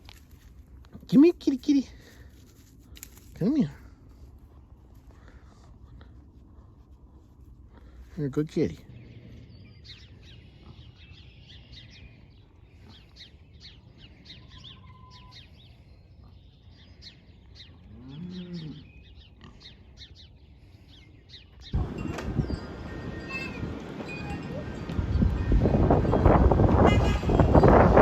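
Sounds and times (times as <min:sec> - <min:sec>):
low moo-like call: 0:17.8 - 0:19.0.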